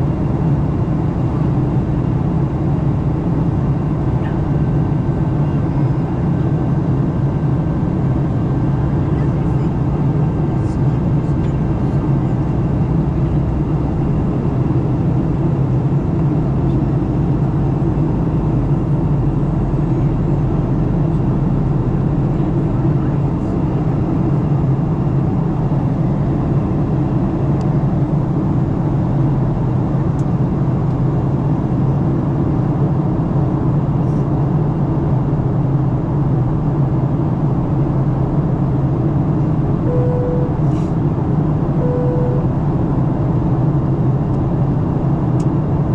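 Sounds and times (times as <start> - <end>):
airplane cabin engine rumble: 0.0 - 45.9
short single-pitched tone: 39.8 - 40.9, 41.8 - 42.6.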